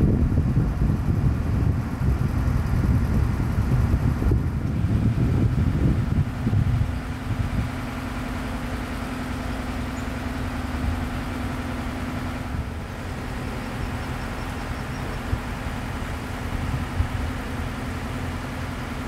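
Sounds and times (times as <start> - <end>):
rough wind noise: 0.0 - 8.9, 14.8 - 18.0
engine idling: 0.0 - 19.0.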